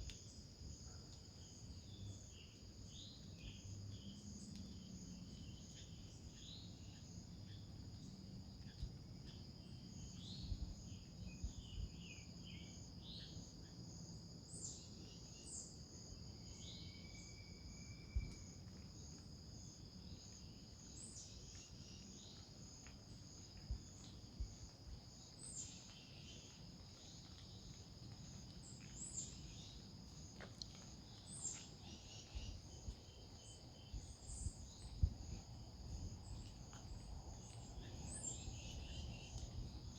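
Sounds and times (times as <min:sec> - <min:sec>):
high-pitched insect trill: 0:08.7 - 0:27.8, 0:28.8 - 0:39.9.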